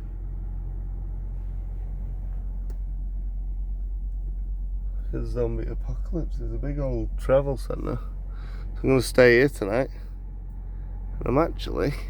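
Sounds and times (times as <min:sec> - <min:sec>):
diesel truck engine idling: 0:00.0 - 0:12.0
faint click: 0:02.6 - 0:02.9.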